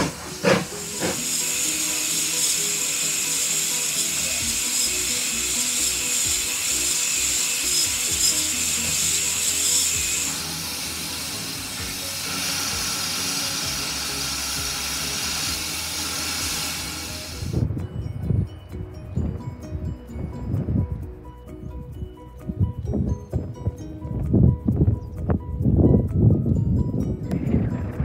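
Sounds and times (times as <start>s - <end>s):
steam hissing: 0.0s - 17.6s
background music: 0.0s - 28.0s.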